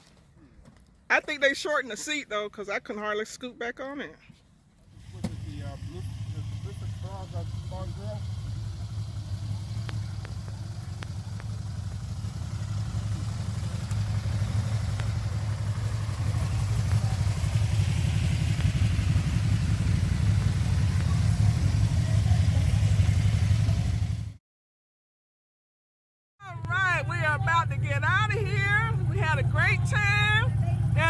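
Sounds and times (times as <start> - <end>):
motorcycle engine rumbling: 4.8 - 24.4, 26.4 - 31.0.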